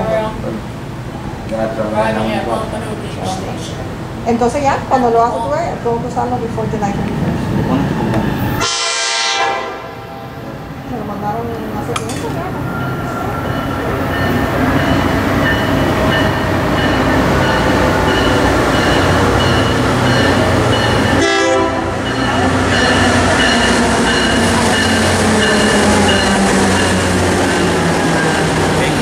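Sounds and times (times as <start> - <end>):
diesel train engine rumble: 0.0 - 29.0
train horn: 8.6 - 10.4, 21.1 - 23.0
bell ringing: 12.7 - 28.5.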